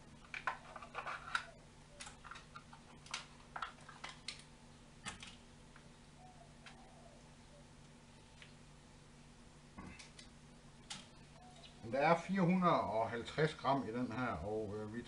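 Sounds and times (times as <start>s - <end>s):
faint steady hum: 0.0s - 15.0s
plastic lid clicks and crinkles: 0.2s - 5.4s.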